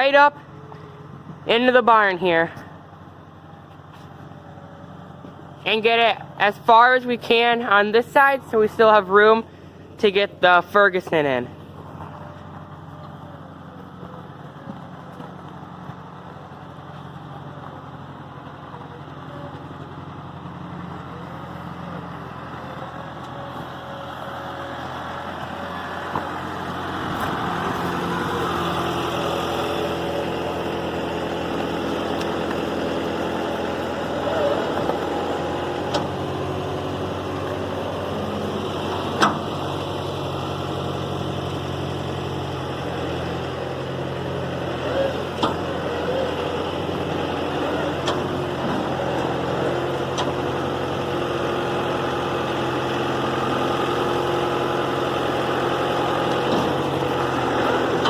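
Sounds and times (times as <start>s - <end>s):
diesel tractor engine low revs: 0.0s - 58.0s.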